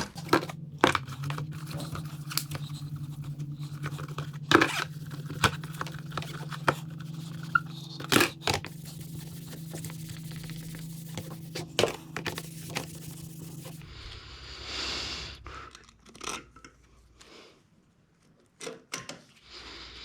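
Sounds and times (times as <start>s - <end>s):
scraping and rustling: 0.0s - 13.8s
steady low hum: 0.0s - 16.2s.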